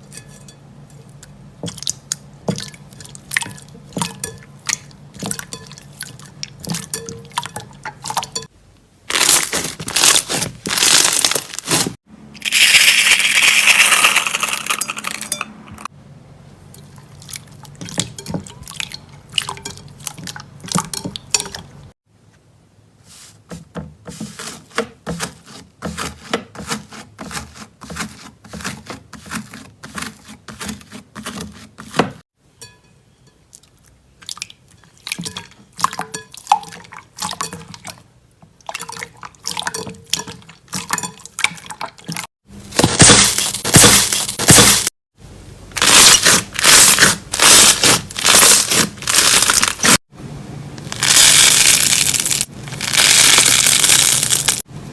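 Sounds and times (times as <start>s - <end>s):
dense crackling of crunchy slime: 9.1s - 14.5s, 45.7s - 50.0s, 50.8s - 54.6s.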